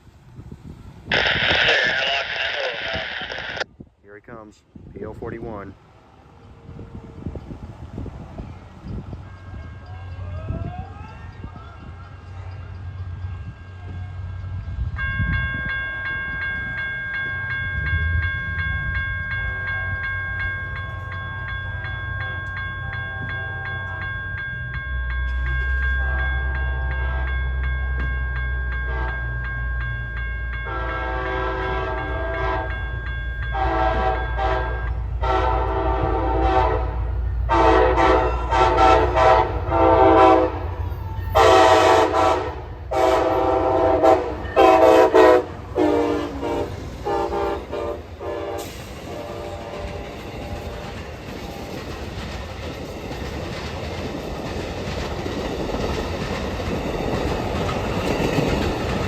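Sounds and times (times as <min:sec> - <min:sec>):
train horn blasts: 0:28.9 - 0:29.2, 0:30.6 - 0:32.8, 0:33.5 - 0:50.1.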